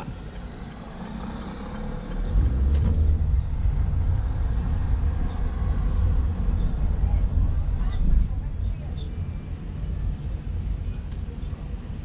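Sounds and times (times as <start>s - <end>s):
car engine from inside cabin: 0.0s - 7.6s
road rumble: 0.0s - 12.0s.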